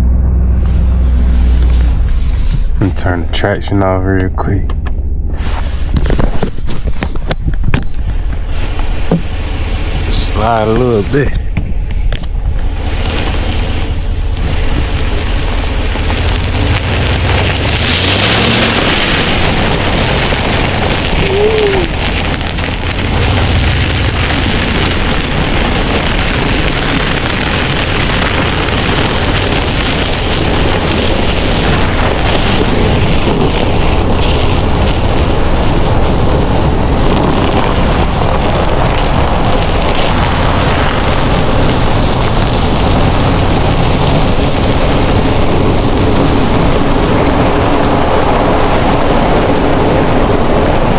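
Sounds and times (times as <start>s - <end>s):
faint whine: 0.0s - 25.9s
pickup engine running: 0.0s - 50.9s
tyre and slush noise: 5.3s - 11.4s, 12.6s - 50.9s.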